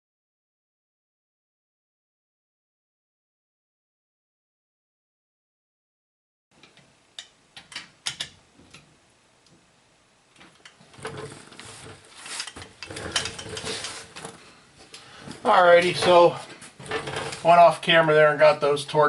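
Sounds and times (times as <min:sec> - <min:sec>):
ratcheting and metal clatter: 0:11.0 - 0:14.4, 0:15.7 - 0:17.6.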